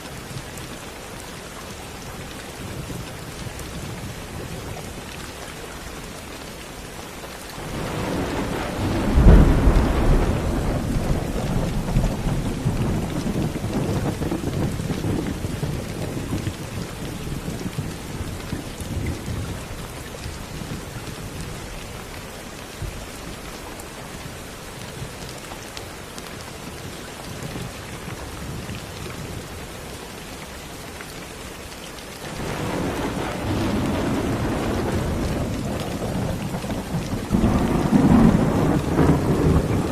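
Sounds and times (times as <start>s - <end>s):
steady rain falling: 0.0s - 39.9s
thunder rumbling: 7.6s - 19.8s, 32.3s - 39.9s.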